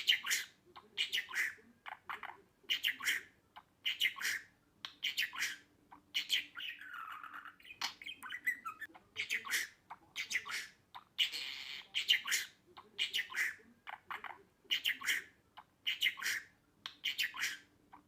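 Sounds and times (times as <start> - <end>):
budgerigar chattering: 0.0 - 18.0
budgerigar warble: 6.2 - 17.7.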